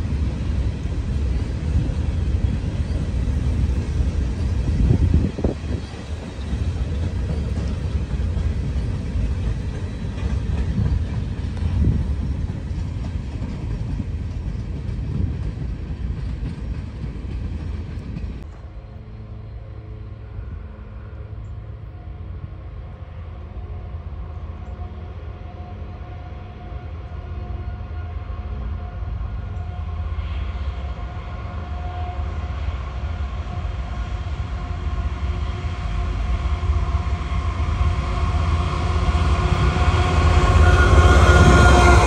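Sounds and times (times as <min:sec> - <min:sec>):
freight train wheels clattering: 0:00.0 - 0:18.5
diesel locomotive hum: 0:00.0 - 0:42.0.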